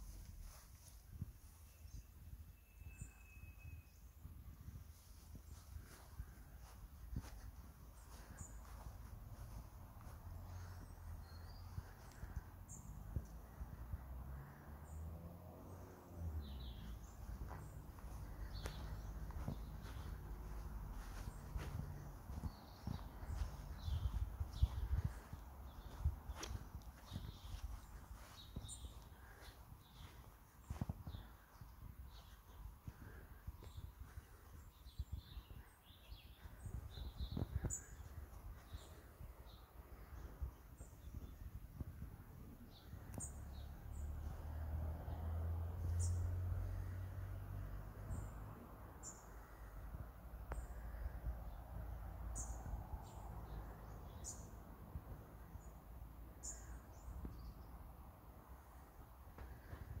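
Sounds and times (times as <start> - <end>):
small birds chirping: 0.0 - 60.0
steady low rumble: 4.4 - 35.6.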